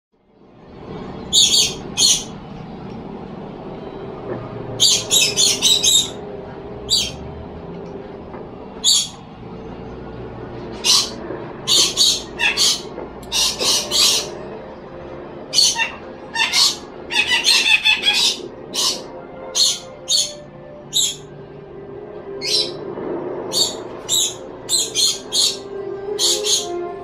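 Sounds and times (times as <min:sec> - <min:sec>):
low background hum: 0:00.2 - 0:27.0
bird chirping: 0:01.3 - 0:02.3, 0:04.8 - 0:06.2, 0:06.9 - 0:07.2, 0:08.8 - 0:09.2, 0:10.8 - 0:14.3, 0:19.6 - 0:21.2, 0:26.2 - 0:26.7.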